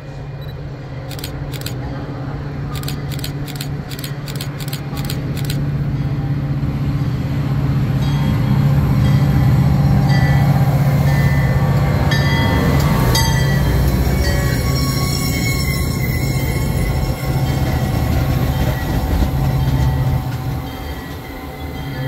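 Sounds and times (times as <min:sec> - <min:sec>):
diesel locomotive engine rumble: 0:00.0 - 0:22.0
sharp clicks: 0:02.8 - 0:05.6
high squealing train tones: 0:09.8 - 0:22.0.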